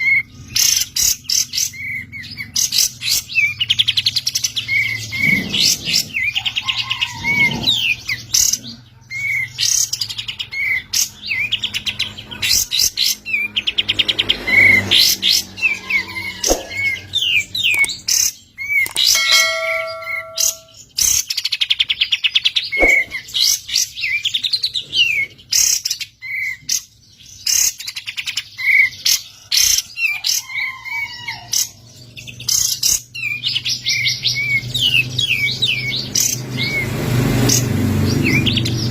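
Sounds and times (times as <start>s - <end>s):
bird singing chattering runs: 22.7s - 23.4s.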